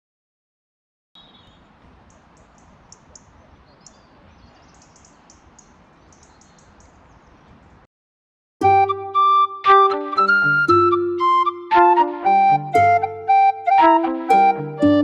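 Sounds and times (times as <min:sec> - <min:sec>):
small birds chirping: 0:01.2 - 0:07.9.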